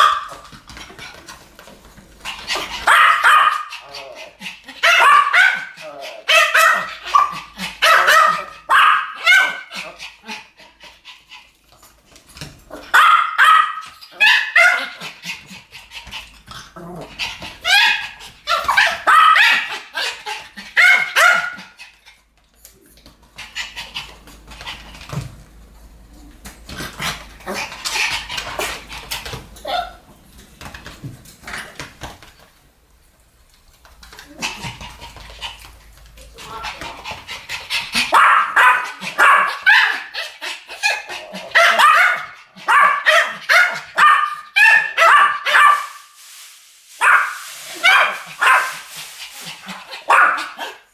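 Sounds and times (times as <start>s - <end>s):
dogs barking: 0.0s - 0.4s, 2.8s - 4.0s, 4.8s - 9.8s, 12.9s - 15.1s, 17.7s - 20.0s, 20.7s - 21.8s, 38.0s - 40.2s, 40.8s - 46.0s, 49.9s - 50.8s.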